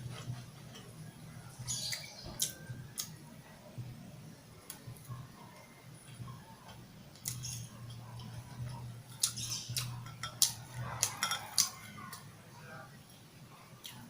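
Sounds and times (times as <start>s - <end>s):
person chewing with clicks and smacks: 0.0s - 3.2s, 6.0s - 12.3s, 13.8s - 14.0s.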